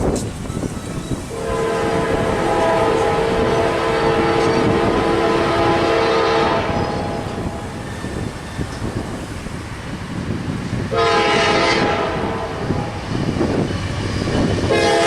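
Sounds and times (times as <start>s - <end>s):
train rumbling: 0.0s - 15.0s
locomotive air horn: 1.3s - 7.8s, 10.9s - 13.0s, 14.7s - 15.0s.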